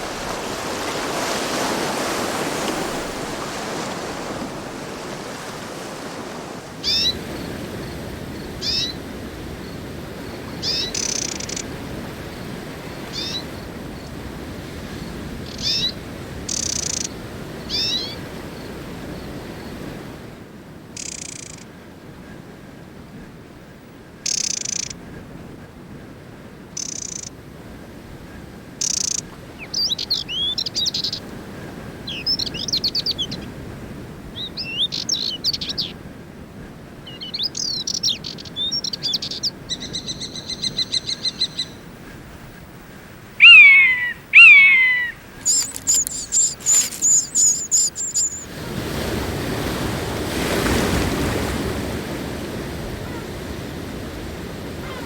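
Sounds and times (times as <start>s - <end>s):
sea surf: 0.0s - 55.0s
wild birds chirping and singing: 37.0s - 42.0s, 43.1s - 48.5s.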